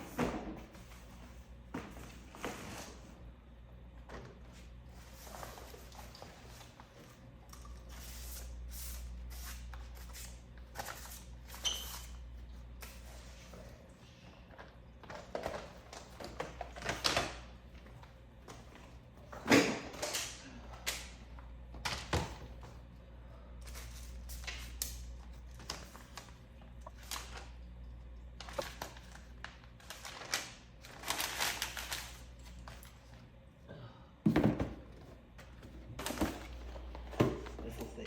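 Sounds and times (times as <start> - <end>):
low steady hum: 0.0 - 38.0
boxes being moved and handled: 34.3 - 38.0.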